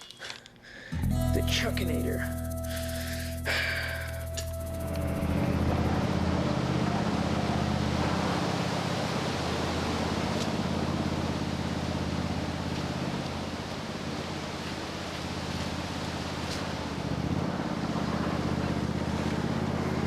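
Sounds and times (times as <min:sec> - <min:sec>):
engine running with fast throb: 0:00.9 - 0:20.0.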